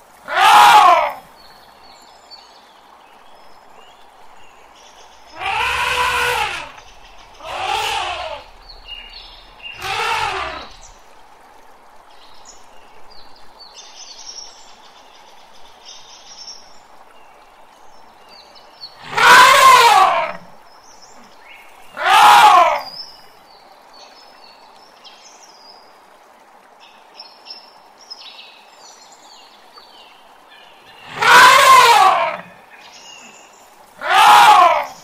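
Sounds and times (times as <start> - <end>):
elephant trumpeting: 0.3 - 1.2, 5.3 - 8.7, 9.5 - 11.0, 19.0 - 20.5, 22.0 - 22.9, 31.1 - 32.5, 34.0 - 35.0.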